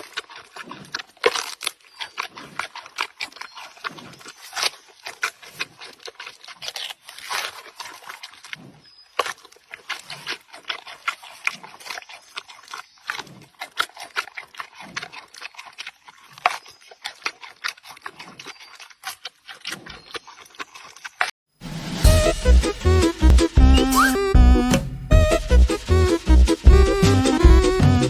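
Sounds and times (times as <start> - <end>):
animal crackling and crunching clicks: 0.0 - 21.3.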